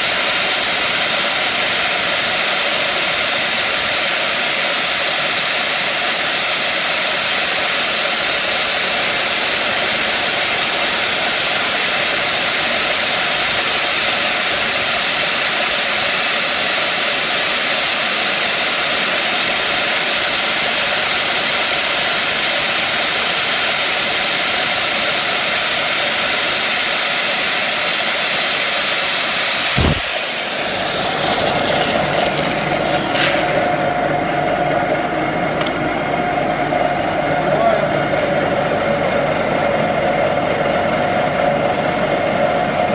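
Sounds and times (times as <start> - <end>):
workshop machinery rushing: 29.1 - 34.1
machine stopping thump: 29.6 - 34.0.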